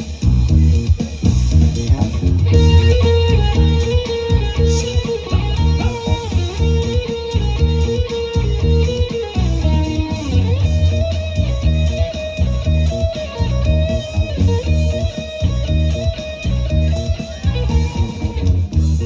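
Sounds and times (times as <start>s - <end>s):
bass: 0.0s - 19.0s
steady drum beat: 0.0s - 19.0s
electric guitar melody: 1.5s - 19.0s.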